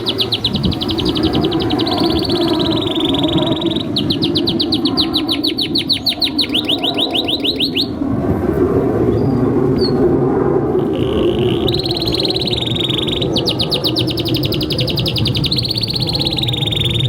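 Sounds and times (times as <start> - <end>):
canary singing trills: 0.0 - 8.0, 10.8 - 17.0.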